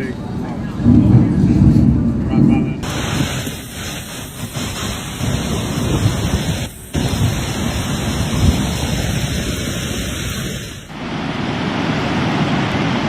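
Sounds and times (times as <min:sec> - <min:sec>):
flooded river rushing: 0:02.8 - 0:13.0.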